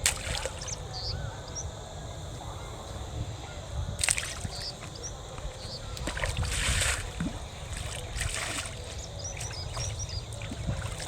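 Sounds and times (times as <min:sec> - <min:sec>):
low wind rumble: 0:00.0 - 0:11.0.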